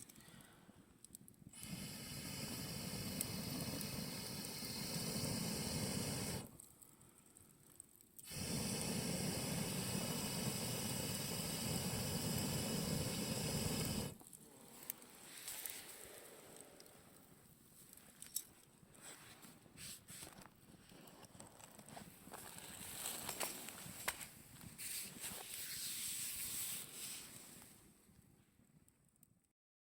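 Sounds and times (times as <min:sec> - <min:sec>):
flames hissing: 0:01.5 - 0:06.8, 0:08.2 - 0:17.3, 0:22.2 - 0:27.9.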